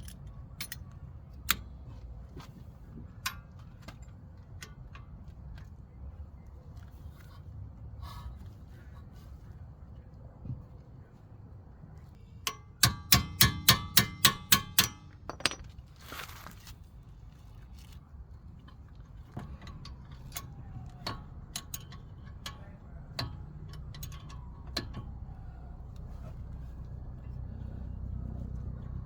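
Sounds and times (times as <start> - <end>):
light metal clinks: 15.2 - 15.7
rustle: 15.3 - 19.3.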